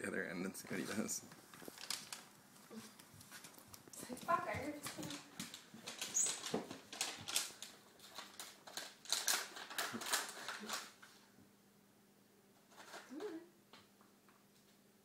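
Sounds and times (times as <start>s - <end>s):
cat scrabbling clicks and rustles: 0.7s - 11.2s, 12.6s - 13.2s.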